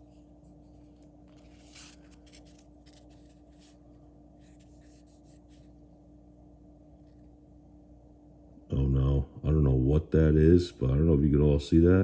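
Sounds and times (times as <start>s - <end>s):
low electrical hum: 0.0s - 12.0s
cards rustling and shuffling: 0.5s - 3.9s.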